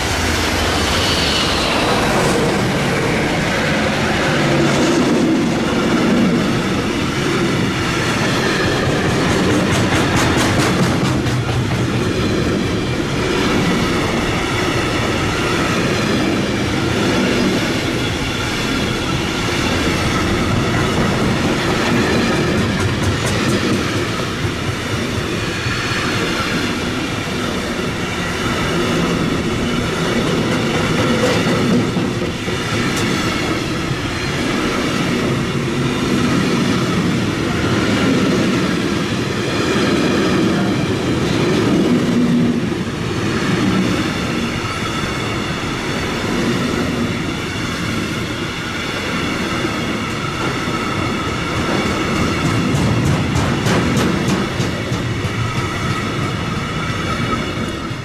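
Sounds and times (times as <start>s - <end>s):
train wheels rumbling on rail: 0.0s - 58.0s
wheels clicking over rail joints: 8.6s - 12.5s, 20.5s - 25.5s, 51.4s - 56.4s.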